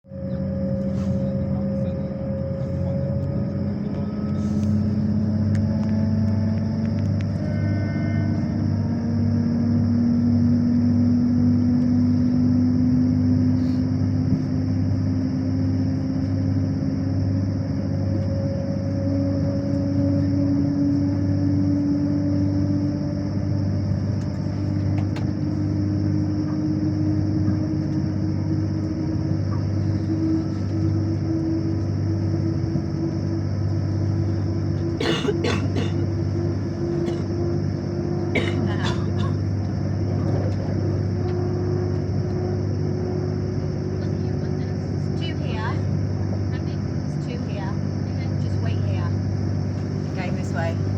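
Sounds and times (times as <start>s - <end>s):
rising vehicle whine: 0.0s - 50.9s
vehicle interior rumble and hiss: 0.1s - 50.9s
person coughing: 35.0s - 36.0s, 37.0s - 37.3s, 38.3s - 39.4s.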